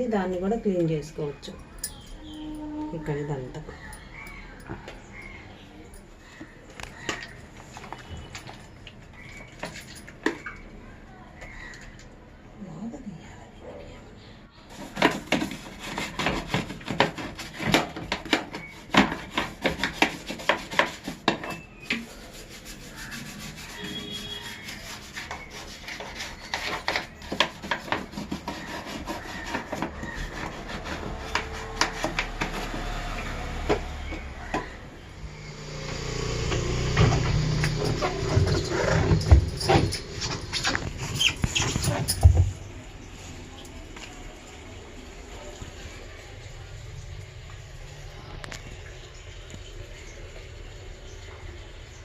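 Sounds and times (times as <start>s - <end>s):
scrubbing and scraping strokes: 14.7s - 33.6s.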